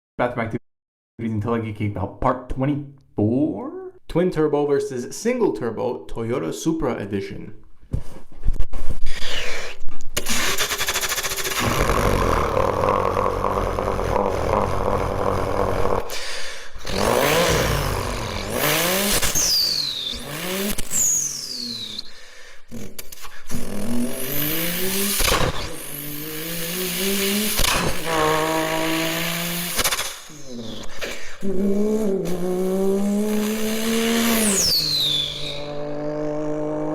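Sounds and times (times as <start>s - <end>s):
car engine revving and accelerating: 10.4s - 16.1s, 16.8s - 22.0s, 22.7s - 36.9s
turbo whistles: 19.2s - 23.6s, 34.2s - 35.8s.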